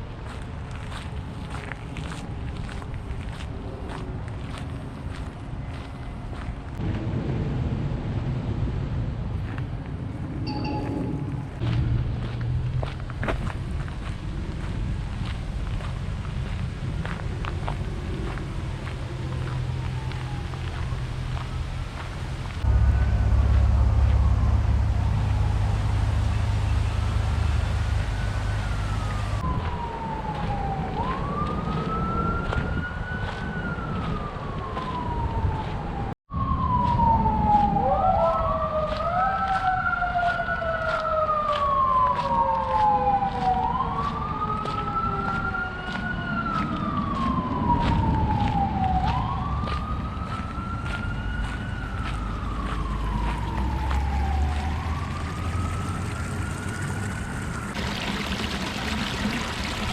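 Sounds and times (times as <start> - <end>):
low rumble: 6.7 - 29.9
emergency vehicle sirens wailing: 10.5 - 59.9.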